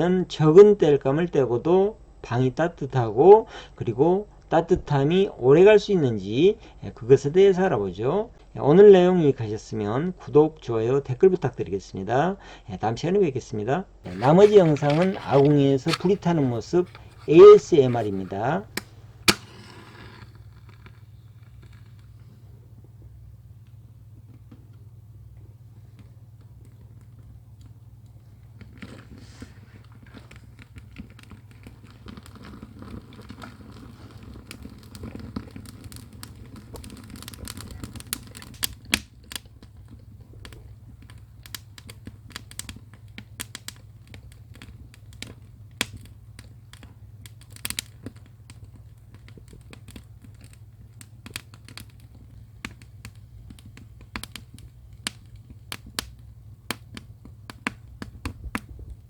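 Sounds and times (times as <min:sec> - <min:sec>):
firewood crackling and popping: 0:14.0 - 0:59.0
rush of flame: 0:14.1 - 0:24.4, 0:28.2 - 0:56.2.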